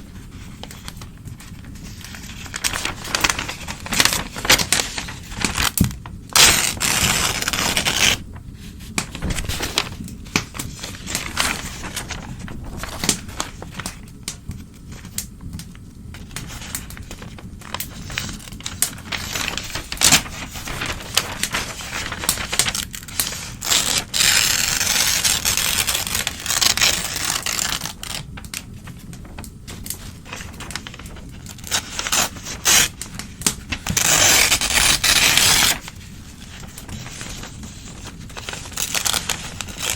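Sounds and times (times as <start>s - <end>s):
paper crackling and rustling: 0.0s - 39.9s
newspaper tearing: 0.4s - 14.1s, 16.2s - 39.9s.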